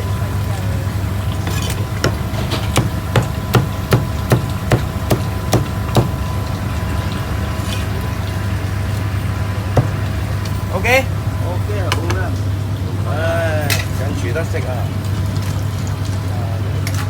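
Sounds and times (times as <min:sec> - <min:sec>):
steady low hum: 0:00.9 - 0:11.4
cleaver chopping on wooden block: 0:02.0 - 0:06.2, 0:09.8 - 0:10.2.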